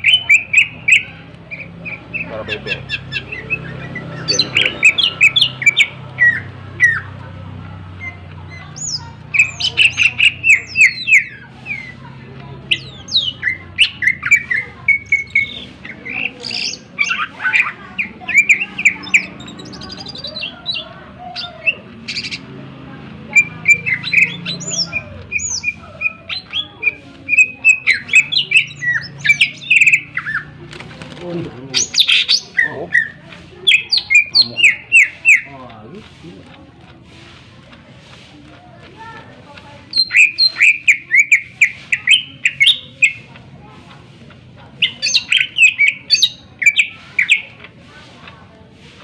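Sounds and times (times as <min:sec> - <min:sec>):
bird singing sharp chirps: 0:00.0 - 0:07.1, 0:08.0 - 0:22.5, 0:23.3 - 0:30.6, 0:31.7 - 0:35.5, 0:39.8 - 0:43.3, 0:44.8 - 0:47.6.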